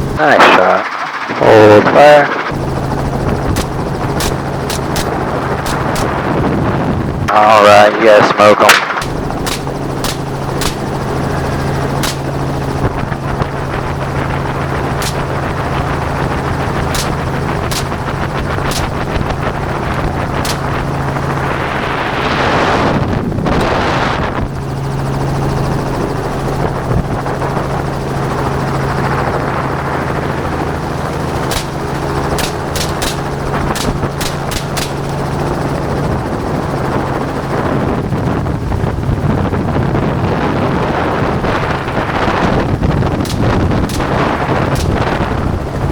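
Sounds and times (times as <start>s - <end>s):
helicopter rotor hum: 0.0s - 45.9s
rush of wind noise: 0.0s - 45.9s
gunshots: 3.5s - 6.3s, 8.6s - 11.4s, 12.0s - 12.4s, 15.0s - 15.8s, 16.9s - 19.3s, 20.4s - 21.0s, 31.5s - 35.4s, 43.1s - 45.4s.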